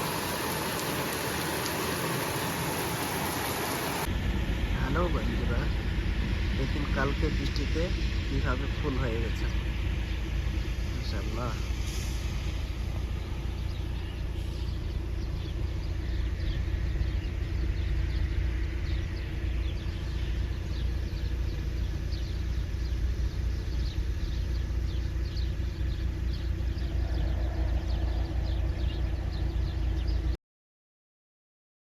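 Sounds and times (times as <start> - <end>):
birds chirping: 0.0 - 30.4
wind rumble on microphone: 12.0 - 30.4.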